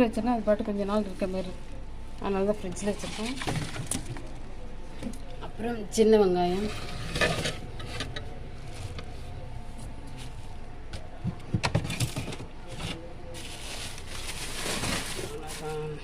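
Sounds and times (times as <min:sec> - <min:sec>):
vegetables rustling in refrigerator: 0:02.4 - 0:04.4, 0:06.5 - 0:16.0.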